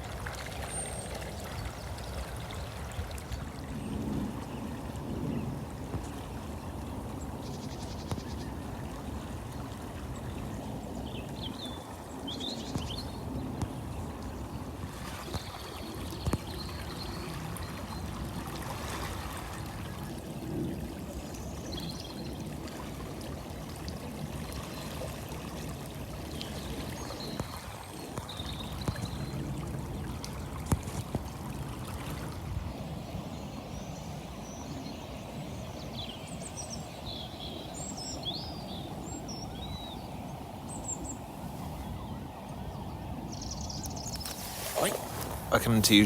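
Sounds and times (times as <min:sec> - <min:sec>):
river water flowing: 0:00.0 - 0:03.9, 0:13.9 - 0:46.0.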